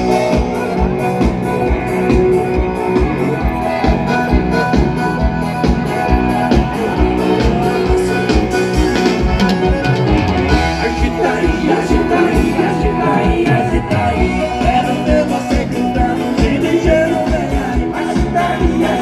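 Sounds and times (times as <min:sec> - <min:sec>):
drum beat: 0:00.0 - 0:19.0
guitar: 0:00.0 - 0:19.0
live band music: 0:00.0 - 0:19.0
person singing: 0:00.0 - 0:19.0.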